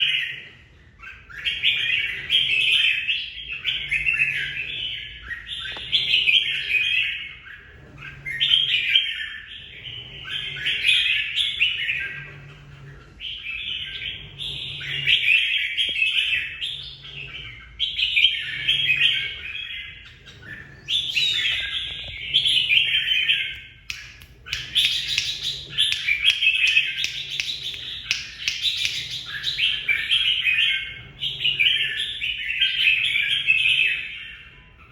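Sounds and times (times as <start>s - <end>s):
bird warbling: 17.5s - 30.9s.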